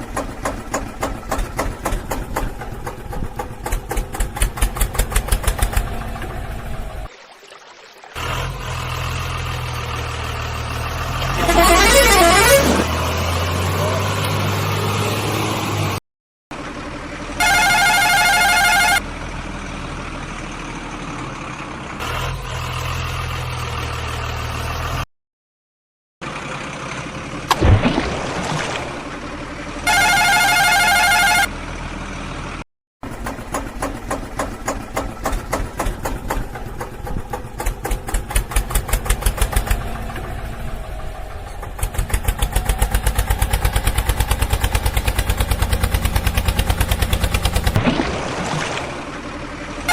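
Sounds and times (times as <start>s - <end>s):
engine running: 0.0s - 7.1s, 8.2s - 25.0s, 26.2s - 49.9s
vehicle horn sounding: 11.3s - 12.9s, 17.4s - 19.0s, 29.8s - 31.5s.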